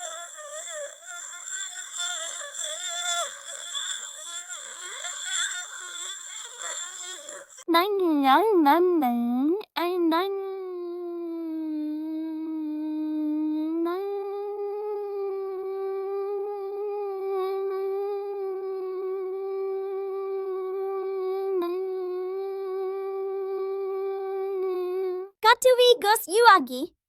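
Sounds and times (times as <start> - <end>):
synthetic voice humming a note: 10.1 - 25.3.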